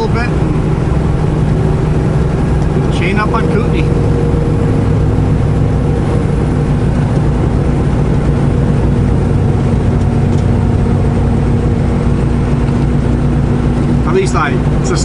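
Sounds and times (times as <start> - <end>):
diesel truck engine running: 0.0 - 15.0
road and cab noise: 0.0 - 15.0.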